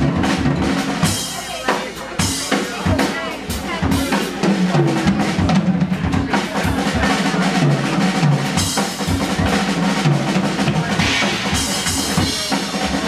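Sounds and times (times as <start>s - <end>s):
jazz band playing: 0.0s - 13.0s
kit drumming: 0.0s - 13.0s
cymbals wash: 8.0s - 13.0s.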